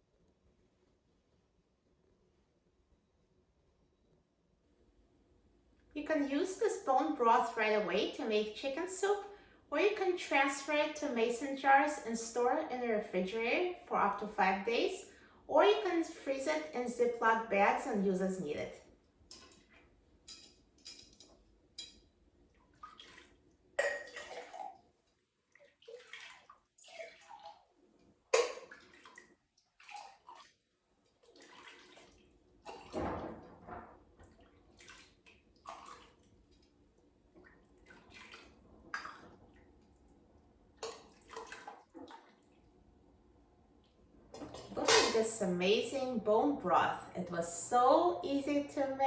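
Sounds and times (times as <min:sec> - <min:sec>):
broth pouring and splashing: 0:22.5 - 0:40.2, 0:40.8 - 0:42.7.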